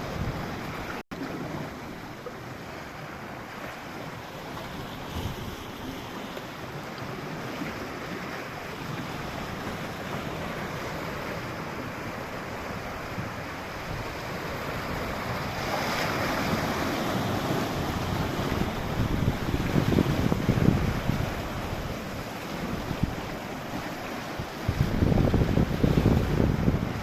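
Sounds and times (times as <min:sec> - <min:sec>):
wind rumbling on microphone: 0:00.0 - 0:01.7, 0:08.8 - 0:27.0
sea waves washing: 0:00.0 - 0:27.0.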